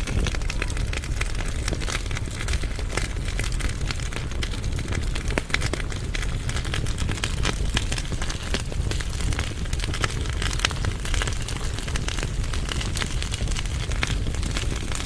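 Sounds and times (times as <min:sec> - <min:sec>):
firewood crackling and popping: 0:00.0 - 0:15.0
low rumble of flames: 0:00.0 - 0:15.0.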